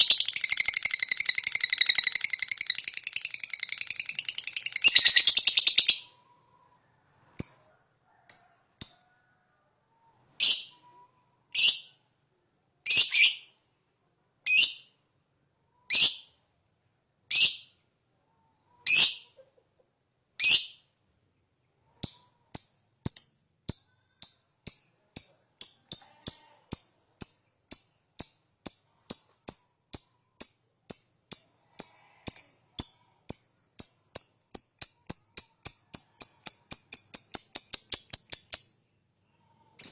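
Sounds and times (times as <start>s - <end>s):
high ticking bird chips: 0.0s - 6.0s, 22.0s - 38.8s
bird chattering trill: 0.0s - 6.2s
sharp bird calls: 0.0s - 6.8s, 39.6s - 39.9s.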